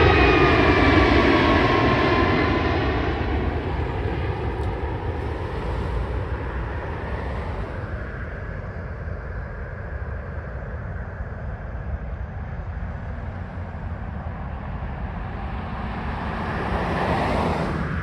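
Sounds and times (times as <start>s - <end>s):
jet engine rumbling rush: 0.0s - 9.1s, 12.7s - 18.0s.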